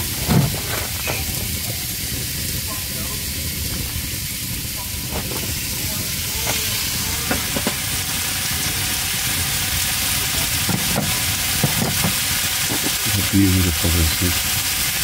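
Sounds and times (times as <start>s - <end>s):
fish sizzling in a frying pan: 0.0s - 15.0s.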